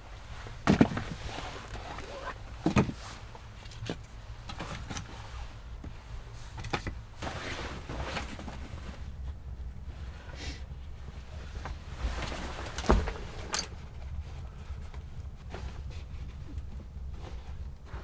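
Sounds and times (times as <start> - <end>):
scraping rustle: 11.3 - 18.0.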